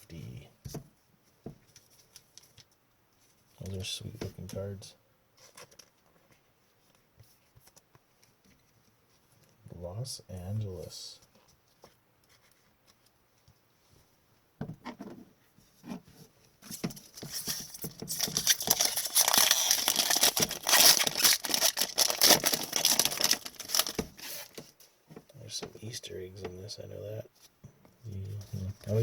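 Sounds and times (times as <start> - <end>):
small handling noises: 0.0 - 29.0
foil wrapper tearing and crinkling: 17.3 - 24.6.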